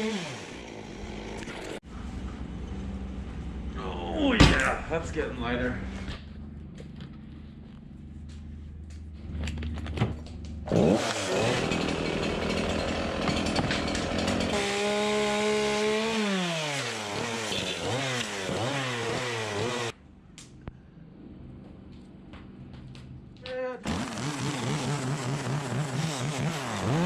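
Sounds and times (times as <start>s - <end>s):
chainsaw cutting wood: 0.0s - 1.8s, 10.6s - 20.0s, 23.8s - 27.0s
chainsaw idling and revving: 0.0s - 1.8s, 10.6s - 20.0s, 23.8s - 27.0s.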